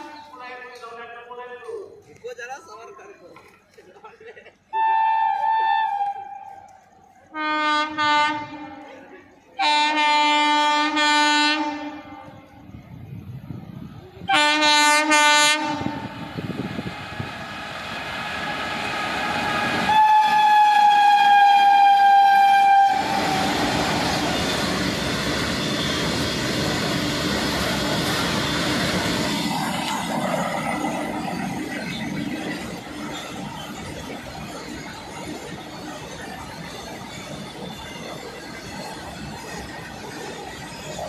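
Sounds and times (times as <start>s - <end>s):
locomotive horn blasts: 7.3s - 9.0s, 9.6s - 12.3s, 14.3s - 16.1s, 19.8s - 23.3s.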